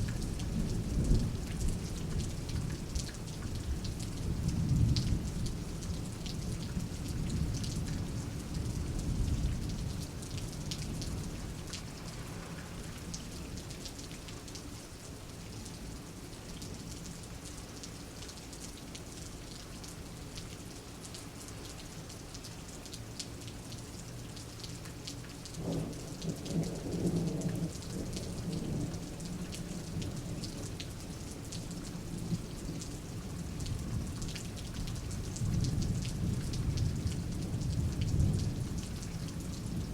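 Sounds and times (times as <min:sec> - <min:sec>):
steady rain: 0:00.0 - 0:39.9
low thunder rumbling: 0:00.2 - 0:02.9.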